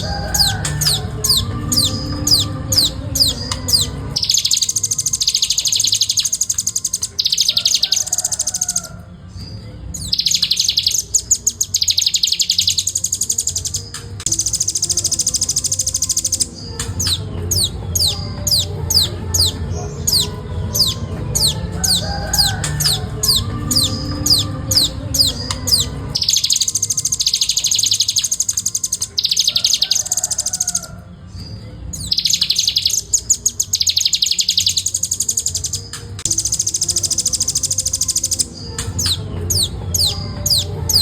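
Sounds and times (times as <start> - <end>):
bird rapid high trills: 0.0 - 9.0, 10.0 - 31.0, 32.0 - 41.0.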